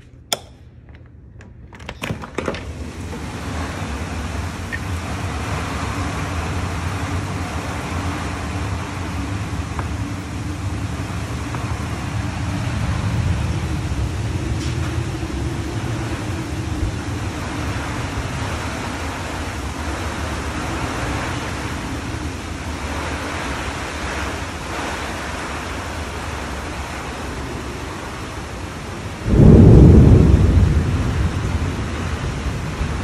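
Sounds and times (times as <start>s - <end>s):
door opening: 0.9s - 3.3s
heavy rain downpour hiss: 2.2s - 33.0s.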